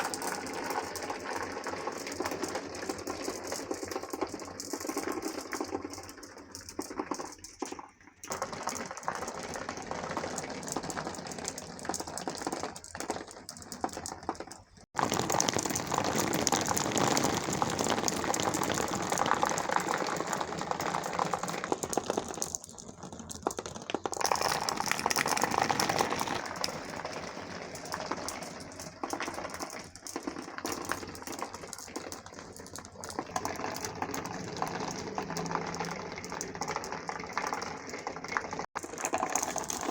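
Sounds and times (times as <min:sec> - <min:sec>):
marbles rolling on a track: 0:00.0 - 0:39.9.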